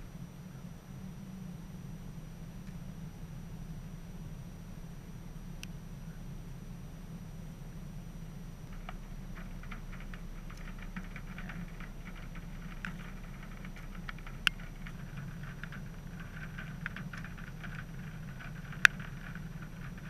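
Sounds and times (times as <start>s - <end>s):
steady low hum: 0.0s - 20.0s
raindrops ticking: 8.2s - 20.0s.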